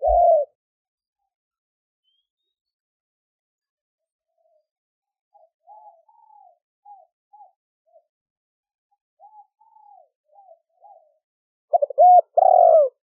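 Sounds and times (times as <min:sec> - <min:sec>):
dove cooing: 0:00.0 - 0:00.6, 0:05.3 - 0:08.0, 0:09.2 - 0:13.0.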